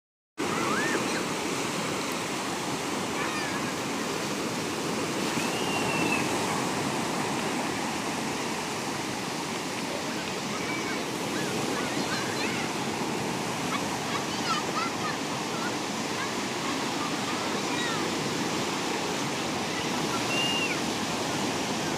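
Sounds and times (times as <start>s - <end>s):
distant high-pitched cries: 0.4s - 1.2s, 5.2s - 6.6s, 20.0s - 20.9s
surf washing onto beach: 0.4s - 21.9s.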